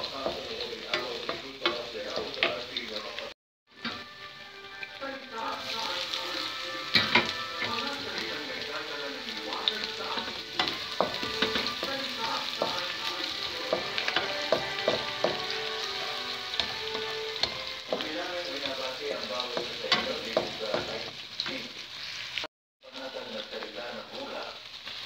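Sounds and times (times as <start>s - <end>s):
garlic and onion sizzling in oil: 0.0s - 25.0s
wooden spatula scraping a pan: 5.6s - 22.4s.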